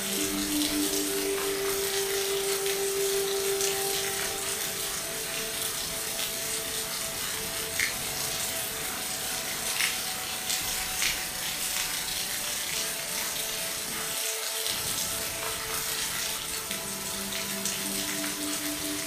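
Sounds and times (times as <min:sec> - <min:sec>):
raindrop ticks: 0:00.0 - 0:13.4, 0:14.6 - 0:19.0
rain hiss: 0:00.0 - 0:19.0.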